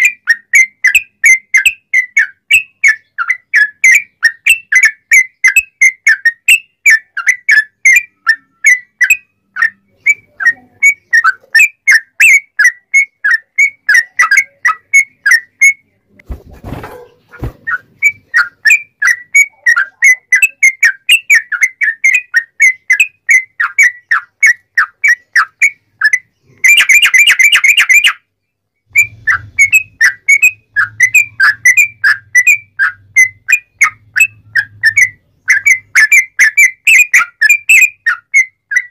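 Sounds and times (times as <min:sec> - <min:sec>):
bird singing whistled notes: 0:00.0 - 0:15.9, 0:17.6 - 0:38.9.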